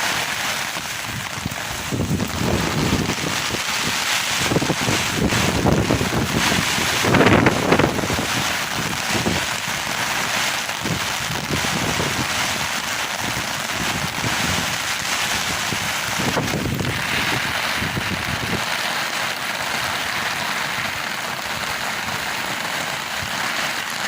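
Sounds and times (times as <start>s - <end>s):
rain: 0.0s - 24.0s
wind buffeting microphone: 0.8s - 9.6s, 10.7s - 12.6s, 13.2s - 18.7s.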